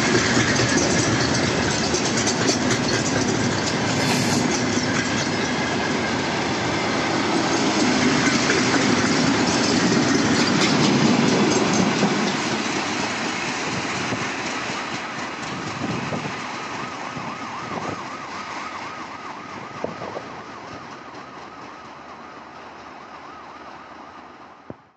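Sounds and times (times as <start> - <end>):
train wheels clattering on rails: 0.0 - 24.8.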